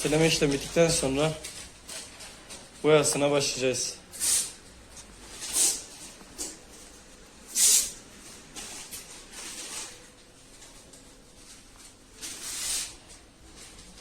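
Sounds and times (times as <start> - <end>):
compressed air hissing: 4.1 - 4.6, 7.5 - 8.0.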